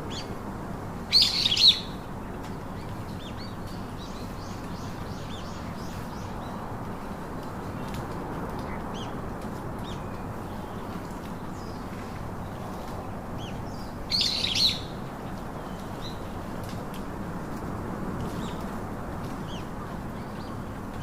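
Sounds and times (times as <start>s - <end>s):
low rushing background noise: 0.0s - 21.0s
small birds chirping: 1.1s - 2.0s, 2.6s - 6.8s, 9.8s - 16.4s.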